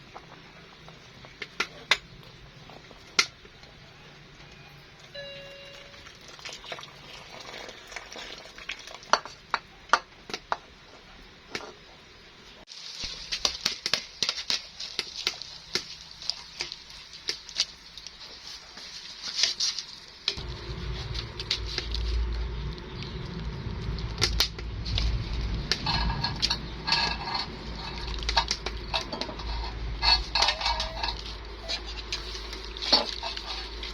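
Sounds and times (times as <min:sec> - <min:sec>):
food sizzling and crackling: 0:05.8 - 0:11.9, 0:12.5 - 0:33.9
low rumble: 0:20.4 - 0:32.8.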